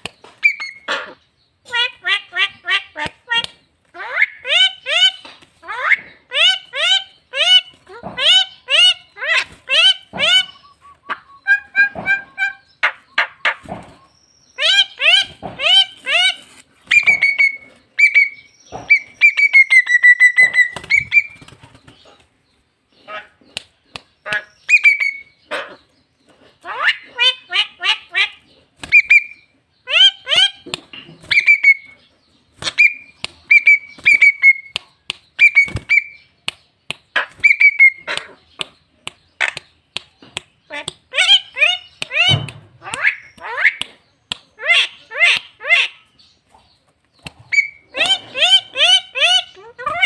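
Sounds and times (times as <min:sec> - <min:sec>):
bird whistled calls: 0:09.8 - 0:21.4, 0:32.6 - 0:34.8, 0:35.4 - 0:36.3, 0:37.2 - 0:38.1
bird clicks and chattering: 0:30.3 - 0:45.8.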